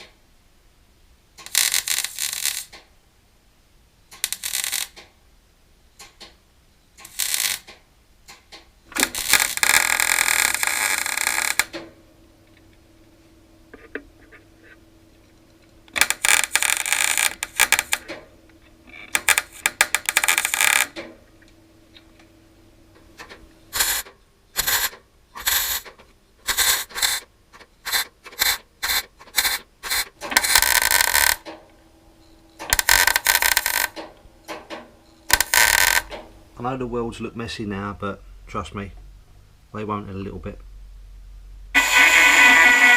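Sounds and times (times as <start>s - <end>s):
welder buzzing on sheet metal: 1.4s - 2.7s, 4.2s - 5.0s, 7.0s - 7.7s, 9.0s - 11.8s, 15.9s - 18.1s, 18.9s - 21.0s, 23.7s - 25.9s, 27.9s - 31.6s, 32.6s - 36.2s, 41.8s - 42.9s.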